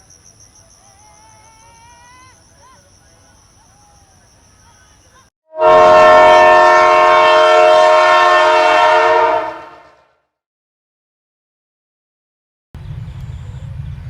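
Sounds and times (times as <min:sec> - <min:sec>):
loud horn chord: 0:05.5 - 0:10.0.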